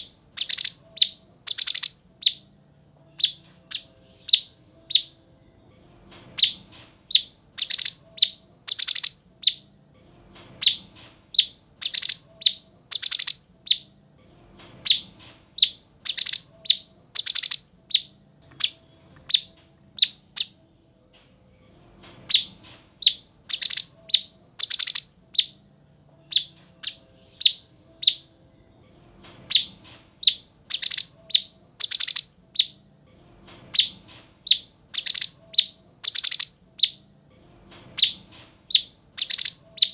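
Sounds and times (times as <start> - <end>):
bird whistling and rasping: 0.4 - 2.4, 6.4 - 9.6, 11.4 - 13.8, 15.6 - 19.5, 22.4 - 25.5, 29.5 - 32.7, 33.8 - 37.0, 38.0 - 39.9.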